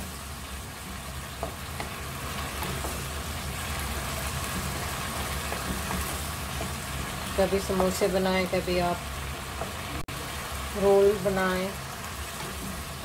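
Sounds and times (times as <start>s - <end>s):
meat sizzling in a wok: 0.0s - 13.0s
wooden spatula stirring: 0.6s - 8.0s.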